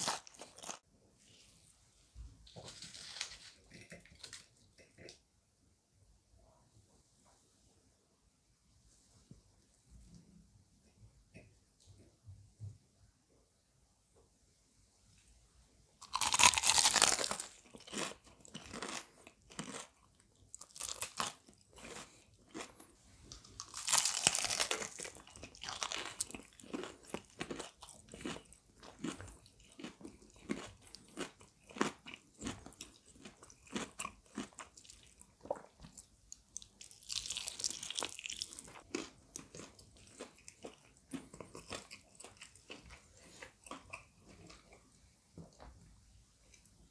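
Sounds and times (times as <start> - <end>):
crunching bites of fried chicken: 0.0 - 0.8, 16.0 - 20.0, 20.6 - 22.8, 23.4 - 35.7, 36.6 - 42.8
crunchy chewing: 0.0 - 0.8, 16.0 - 44.9.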